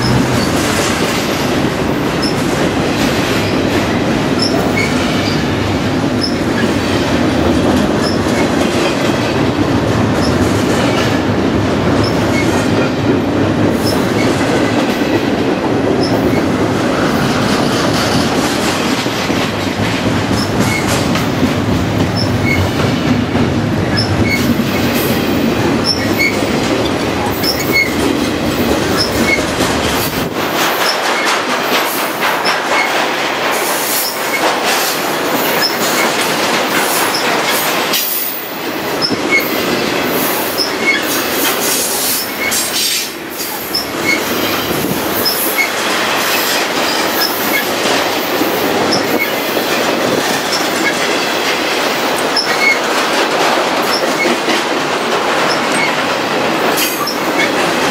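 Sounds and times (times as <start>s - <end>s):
freight cars rolling on rails: 0.0s - 57.9s.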